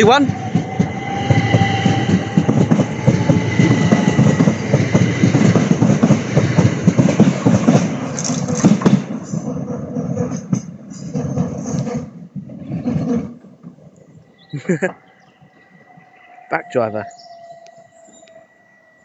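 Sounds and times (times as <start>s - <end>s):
high-pitched train whine: 0.0s - 11.4s, 14.2s - 19.0s
train wheels clattering over rails: 0.0s - 13.9s.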